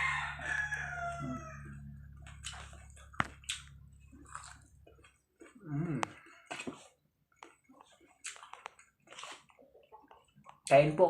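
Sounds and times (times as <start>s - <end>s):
rooster crowing: 0.0s - 2.0s
steady low hum: 0.0s - 6.0s.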